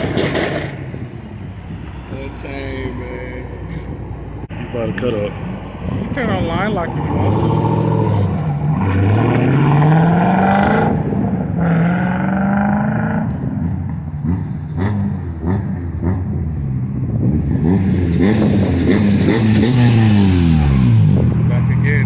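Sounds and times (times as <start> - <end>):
exhaust pops: 0.0 - 1.1
car engine revving hard: 6.6 - 16.4, 17.2 - 22.0.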